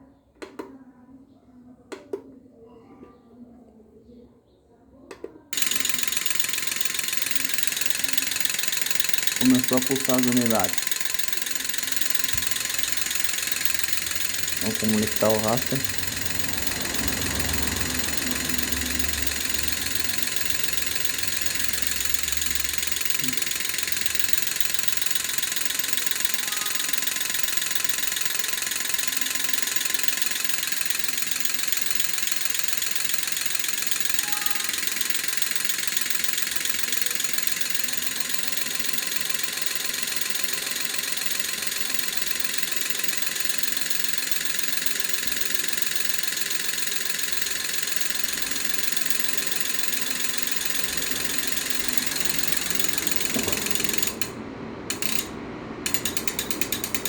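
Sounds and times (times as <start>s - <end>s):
injector solenoids clicking rapidly: 5.1s - 57.0s.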